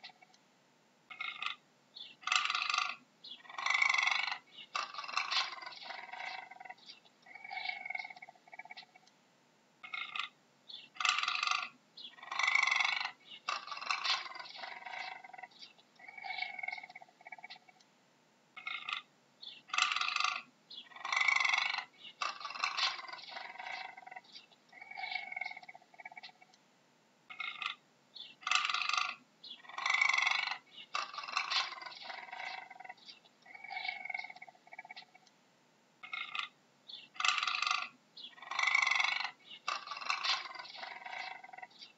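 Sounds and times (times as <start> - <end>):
cougar high-pitched calls: 2.2 - 9.0, 9.8 - 17.8, 18.6 - 19.1, 19.7 - 26.5, 27.3 - 35.2, 36.0 - 41.8.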